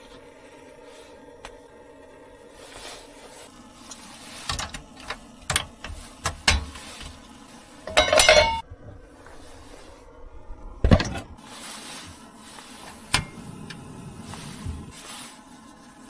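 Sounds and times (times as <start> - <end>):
rattling clatter: 7.9 - 8.6.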